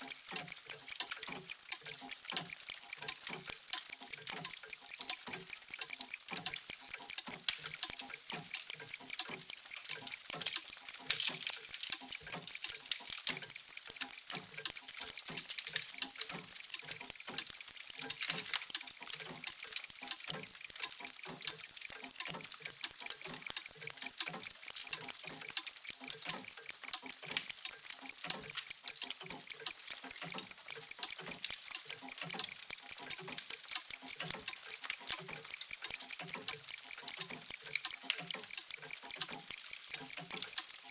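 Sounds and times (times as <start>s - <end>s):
many mechanical clocks ticking: 0.0s - 40.9s.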